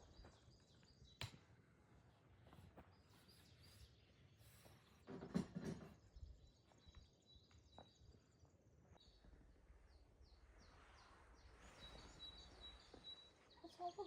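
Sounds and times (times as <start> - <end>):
faint forest ambience: 0.0 - 14.0
bird chirping: 6.2 - 14.0.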